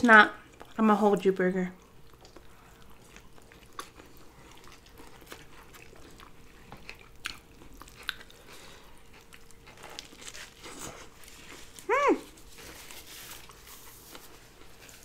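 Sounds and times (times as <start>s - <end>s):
chewing food: 0.4s - 15.0s.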